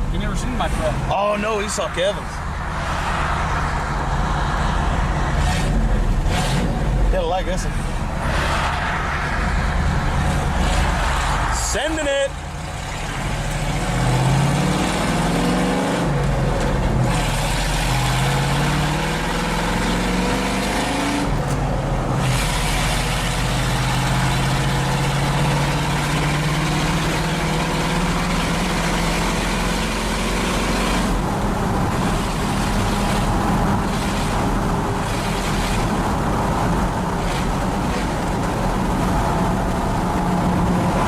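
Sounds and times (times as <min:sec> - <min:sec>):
engine accelerating through gears: 0:04.8 - 0:07.1, 0:12.6 - 0:41.0.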